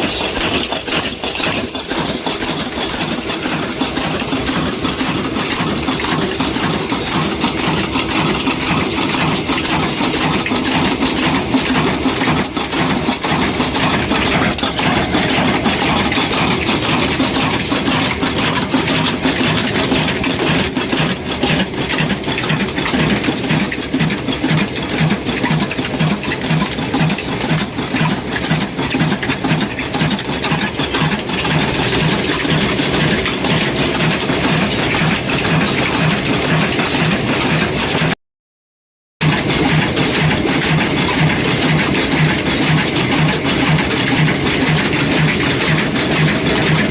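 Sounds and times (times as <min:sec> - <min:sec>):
stationary engine running: 0:00.0 - 0:38.2, 0:39.2 - 0:46.9.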